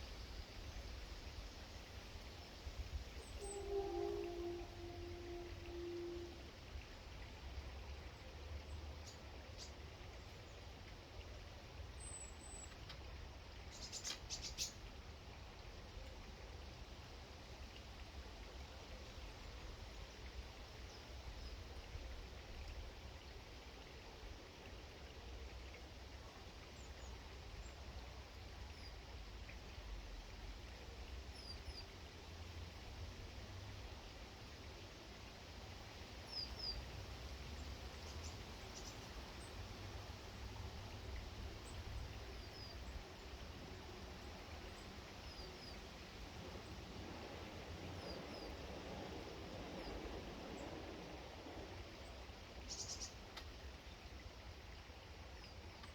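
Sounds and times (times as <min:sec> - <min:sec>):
low outdoor rumble: 0:00.0 - 0:09.0
outdoor hiss and rumble: 0:00.0 - 0:55.9.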